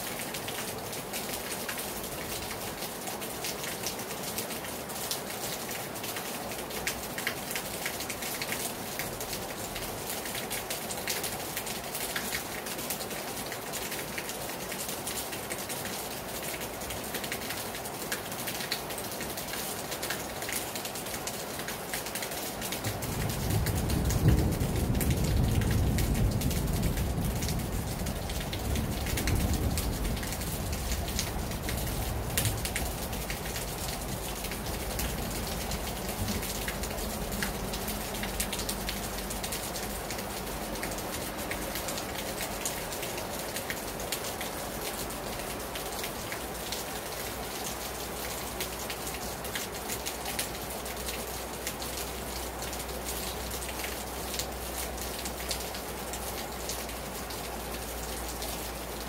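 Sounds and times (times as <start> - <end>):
raindrops spattering: 0.0 - 59.0
heavy rain hissing: 22.7 - 50.9.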